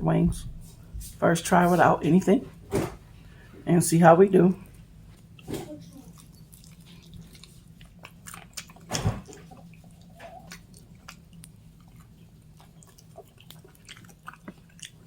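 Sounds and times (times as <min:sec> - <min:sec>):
crunchy chewing of fried chicken: 0:04.6 - 0:15.0.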